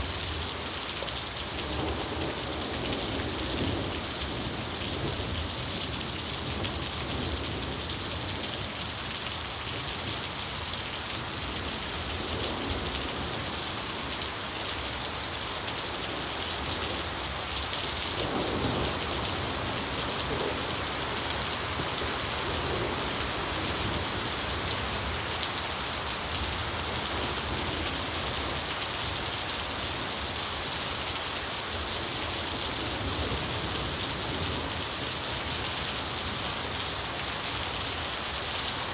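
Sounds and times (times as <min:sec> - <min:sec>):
heavy rain: 0:00.0 - 0:38.9
low rumble of thunder: 0:16.2 - 0:25.2.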